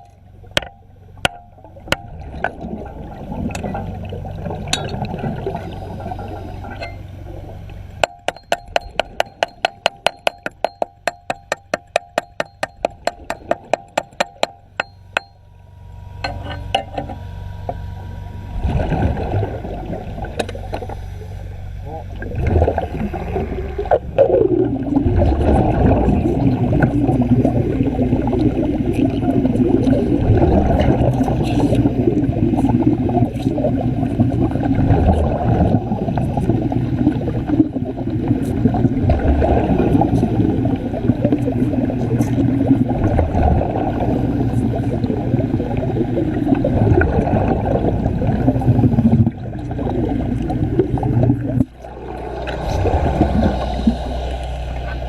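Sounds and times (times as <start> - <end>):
low rumble: 0.0 - 10.0, 12.6 - 55.0
water bubbling and gurgling: 0.0 - 15.3, 16.2 - 55.0.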